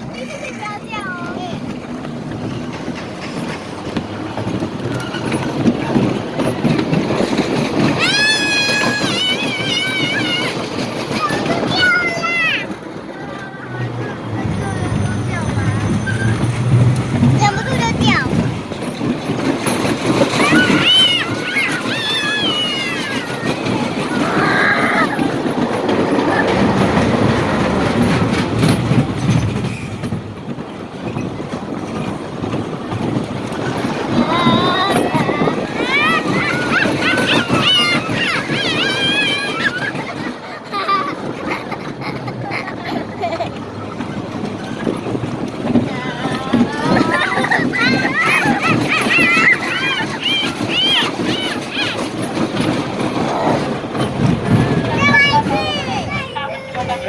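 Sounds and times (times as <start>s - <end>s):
clicks and clacks from cars: 0.0s - 57.0s
roller coaster train rattling: 0.0s - 57.0s
high squeal: 14.0s - 18.1s.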